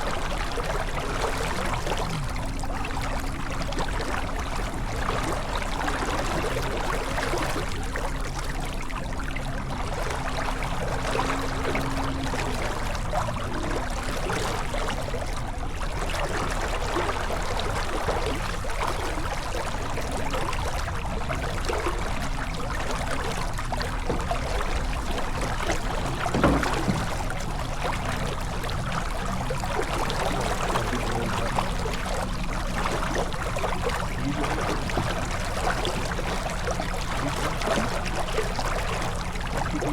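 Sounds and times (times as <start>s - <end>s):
water rushing along a hull: 0.0s - 39.9s
brief knock: 26.3s - 27.1s.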